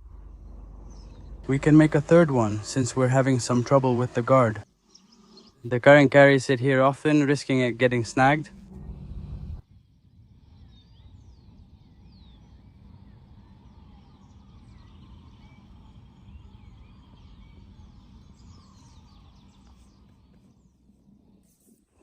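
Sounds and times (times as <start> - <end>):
low outdoor rumble: 0.0 - 21.9
birds chirping and calling: 0.4 - 8.4.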